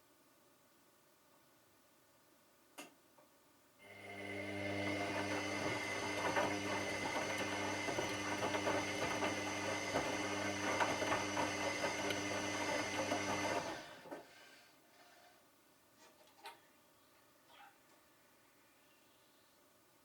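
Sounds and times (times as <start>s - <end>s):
washing machine running: 3.9s - 14.1s.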